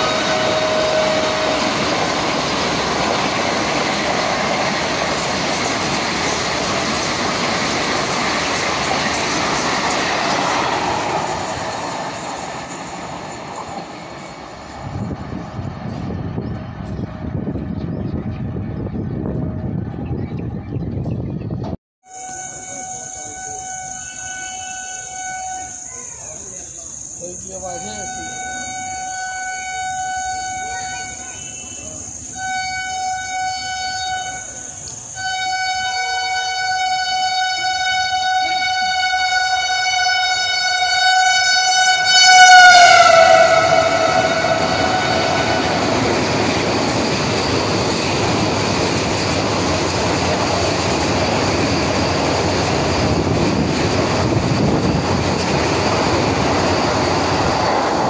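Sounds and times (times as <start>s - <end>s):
train horn blasts: 0.0s - 2.3s, 22.0s - 25.9s, 27.6s - 46.7s
train coaches rushing past: 0.0s - 58.0s.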